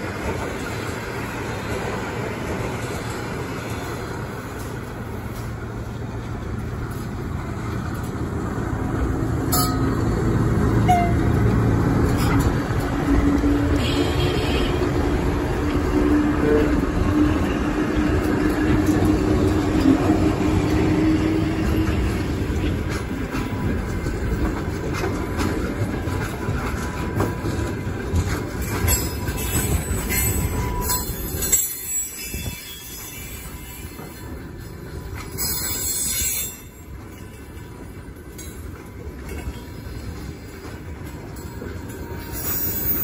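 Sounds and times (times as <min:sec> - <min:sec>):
freight train rumble: 0:00.0 - 0:43.0
freight wagons rolling past: 0:00.0 - 0:43.0
locomotive hum: 0:00.0 - 0:43.0.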